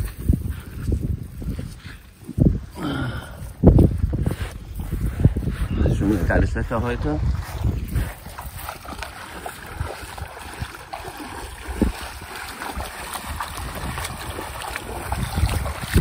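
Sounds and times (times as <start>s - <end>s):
wind rumbling on microphone: 0.0s - 16.0s
shallow water splashing: 7.0s - 16.0s.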